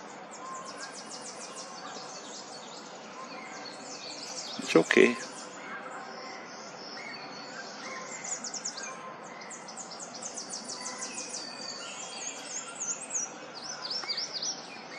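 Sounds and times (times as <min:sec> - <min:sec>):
birds chirping: 0:00.0 - 0:14.9
steady background noise: 0:00.0 - 0:14.9.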